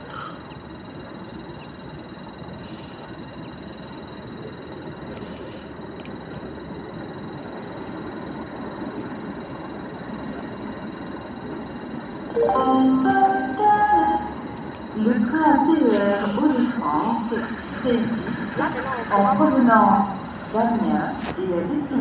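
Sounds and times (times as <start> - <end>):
train rumbling: 0.0 - 22.0
station announcement chime: 6.2 - 22.0.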